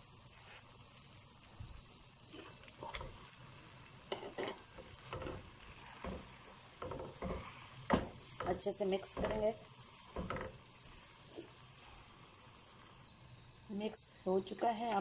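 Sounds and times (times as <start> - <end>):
faint frying sizzle: 0.0 - 15.0
spatula scraping a wok: 4.1 - 12.2.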